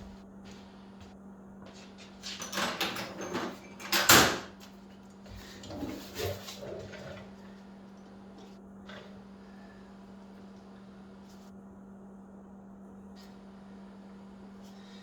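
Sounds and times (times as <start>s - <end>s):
steady low hum: 0.0s - 2.3s, 4.5s - 15.0s
metal tools clattering and scraping: 2.0s - 4.5s.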